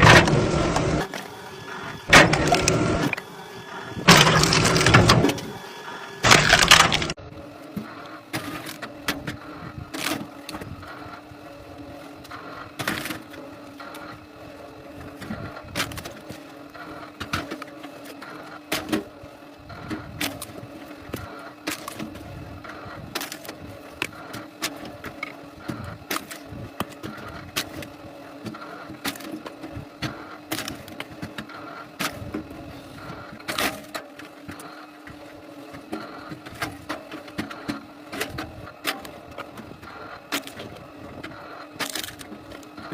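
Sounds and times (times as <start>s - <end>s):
machine humming: 0.0s - 7.2s
wood cracking and knocking: 4.0s - 5.4s, 6.2s - 7.2s.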